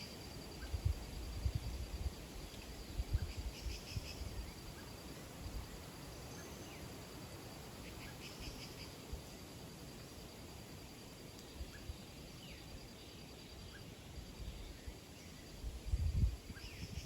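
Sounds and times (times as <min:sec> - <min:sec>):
small birds chirping: 0:06.0 - 0:07.0, 0:07.7 - 0:09.1.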